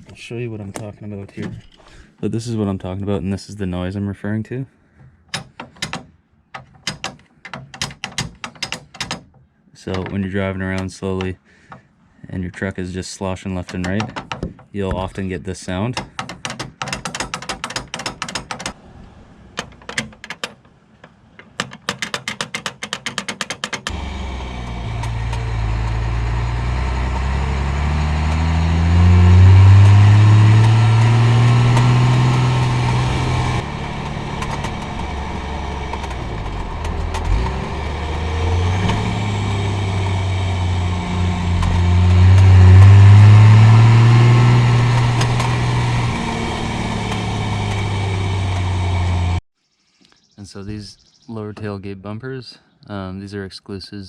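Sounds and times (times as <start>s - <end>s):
metal straps rattling: 5.0s - 9.5s, 16.0s - 18.8s, 19.6s - 23.9s
diesel truck engine accelerating: 23.9s - 49.4s.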